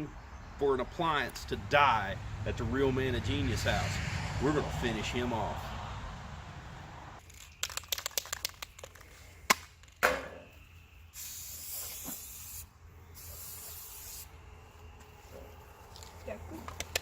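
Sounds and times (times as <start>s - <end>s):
hiss: 11.1s - 14.4s.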